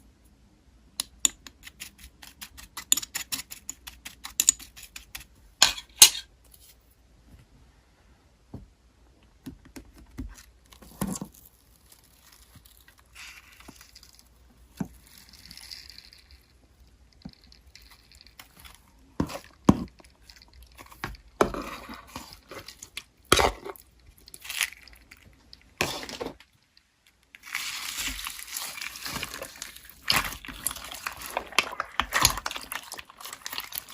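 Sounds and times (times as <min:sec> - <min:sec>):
slime squishing and crackling: 0:10.7 - 0:26.6, 0:27.3 - 0:33.9.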